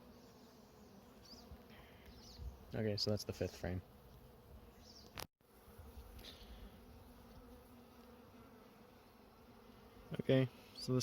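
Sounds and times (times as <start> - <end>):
honey bees humming: 0.0 - 11.0.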